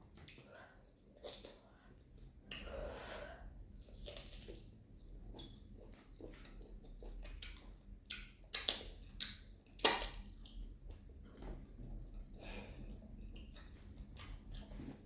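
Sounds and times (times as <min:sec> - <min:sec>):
soft chewing: 0:00.0 - 0:15.0
wet lip smacks and clicks: 0:05.4 - 0:11.1.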